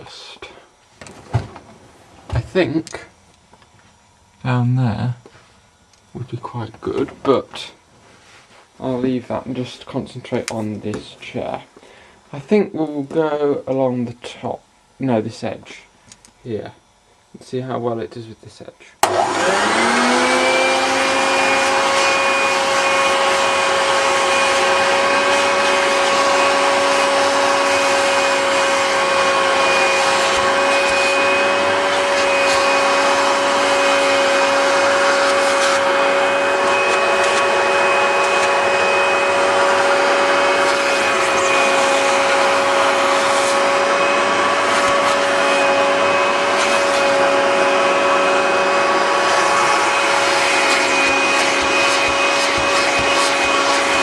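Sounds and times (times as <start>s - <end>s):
vacuum cleaner running: 19.0s - 54.0s.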